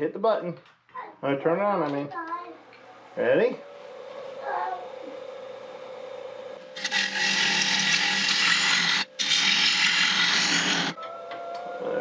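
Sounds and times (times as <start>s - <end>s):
lathe motor humming: 6.6s - 11.0s
gouge cutting spinning wood: 6.7s - 11.0s.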